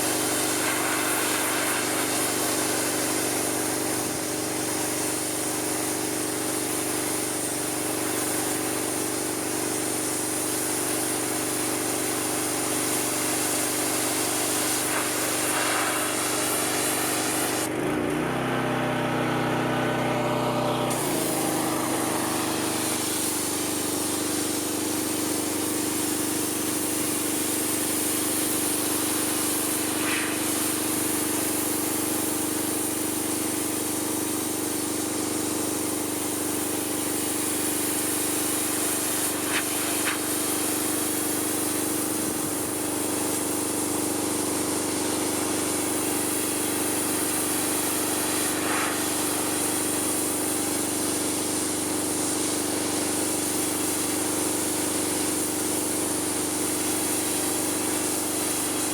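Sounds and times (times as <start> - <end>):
water spray hissing: 0.0 - 9.2, 9.9 - 17.7, 20.9 - 34.9, 36.1 - 58.9
pressure washer motor hum: 0.0 - 58.9.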